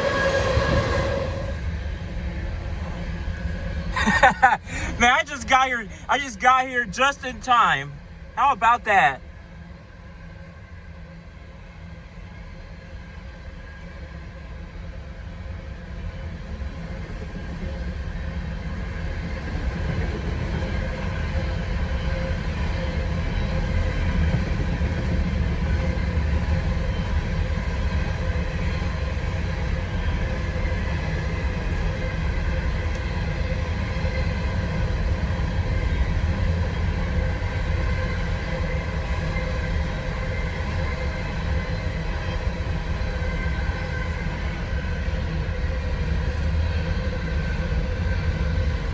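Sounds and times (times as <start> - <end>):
train wheels rumbling on rail: 0.0 - 3.9.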